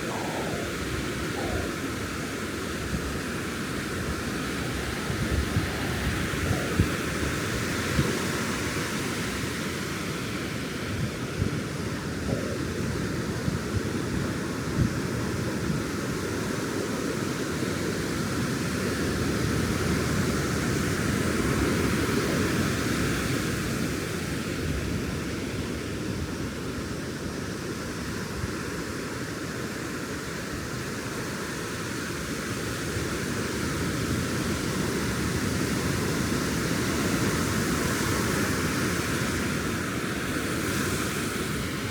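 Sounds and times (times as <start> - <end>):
ocean surf breaking: 0.0 - 8.2.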